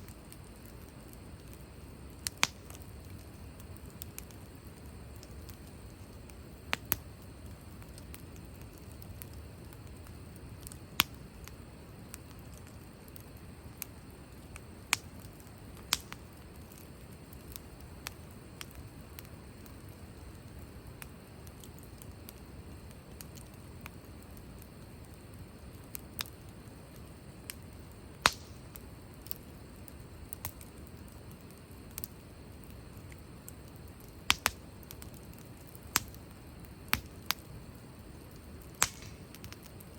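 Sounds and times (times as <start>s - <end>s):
low steady rush of fire: 0.0s - 39.9s
wood fire crackling and popping: 0.0s - 39.9s.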